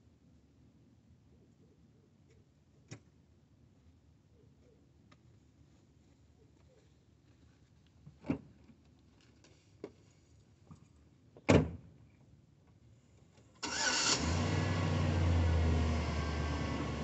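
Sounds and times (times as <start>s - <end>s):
engine cranking and idling: 13.6s - 17.0s.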